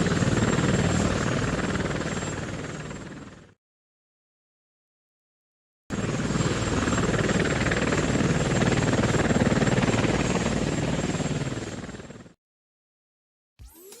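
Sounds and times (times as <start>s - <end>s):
helicopter rotor beating: 0.0s - 3.6s, 5.9s - 12.4s, 13.6s - 14.0s.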